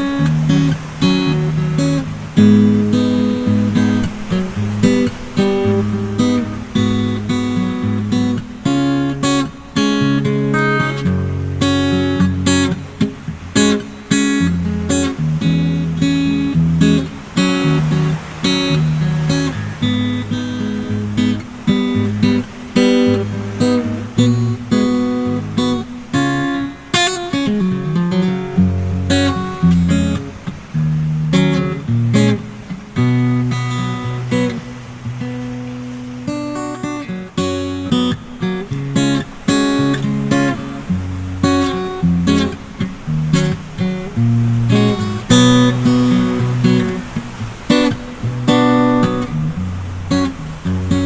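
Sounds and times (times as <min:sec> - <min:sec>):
acoustic guitar chords: 0:00.0 - 0:51.0.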